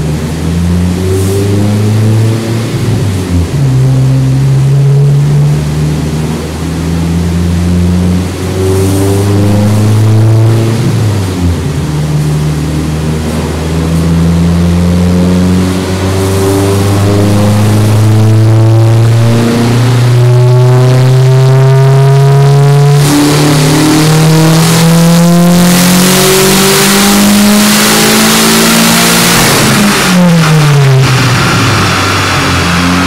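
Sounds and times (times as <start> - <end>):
car engine droning on dynamometer: 0.0 - 33.0.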